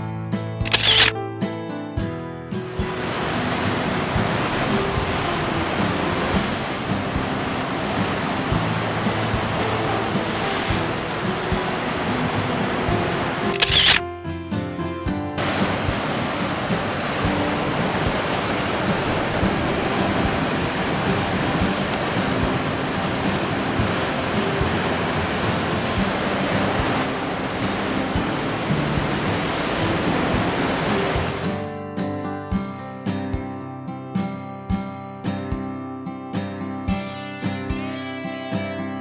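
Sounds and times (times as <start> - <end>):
acoustic guitar music: 0.0 - 39.0
sea surf: 2.6 - 14.0, 15.4 - 31.7.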